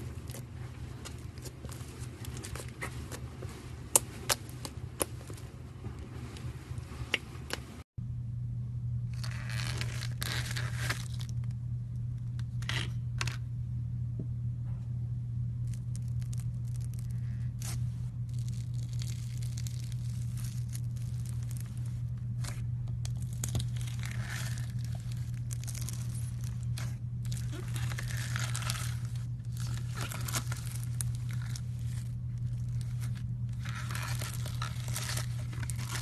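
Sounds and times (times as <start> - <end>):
steady low hum: 0.0 - 36.0
slime crackling and popping: 15.6 - 36.0.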